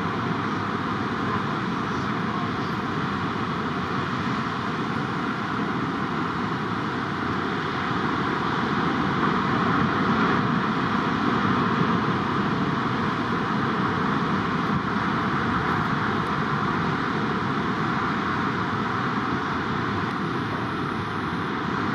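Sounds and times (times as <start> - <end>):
heavy ocean surf roar: 0.0 - 21.9.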